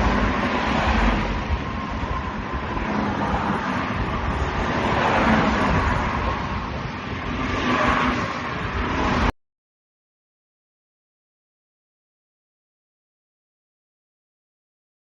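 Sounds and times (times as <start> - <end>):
vehicle rumbling: 0.0 - 9.4.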